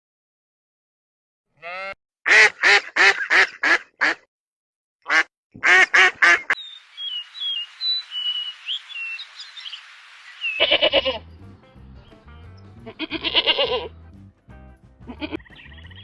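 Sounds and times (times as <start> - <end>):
duck quacking: 1.6 - 4.3, 5.1 - 6.6, 12.8 - 13.9
small birds peeping: 6.2 - 13.2, 15.2 - 16.0
steady hiss: 6.6 - 11.0.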